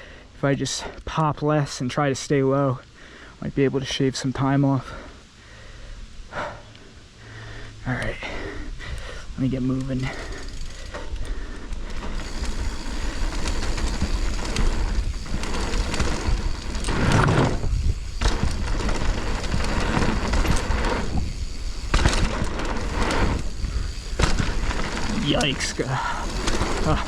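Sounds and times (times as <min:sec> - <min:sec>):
wind and tyre noise: 0:05.8 - 0:27.0
bike rattling: 0:09.6 - 0:27.0
bike clunking over bumps: 0:10.0 - 0:27.0.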